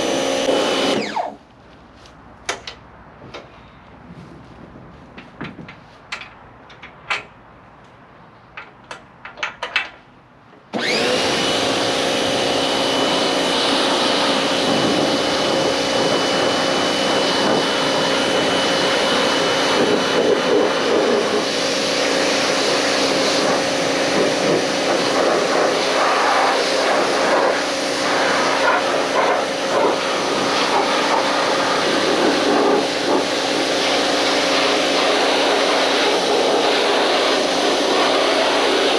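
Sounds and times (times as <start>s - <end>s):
pressure washer motor running: 0.0s - 1.4s, 10.7s - 38.9s.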